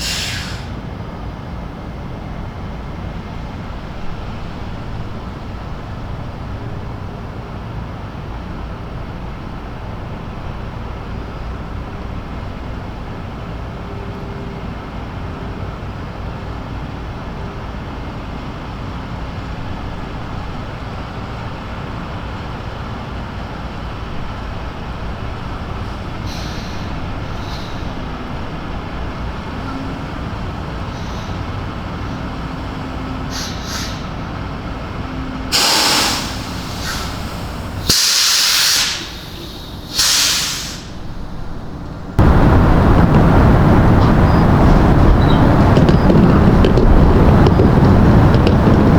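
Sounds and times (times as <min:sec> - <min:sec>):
air brakes hissing: 0:00.0 - 0:00.9, 0:25.0 - 0:29.6, 0:30.5 - 0:42.3
diesel truck engine running: 0:00.0 - 0:48.9.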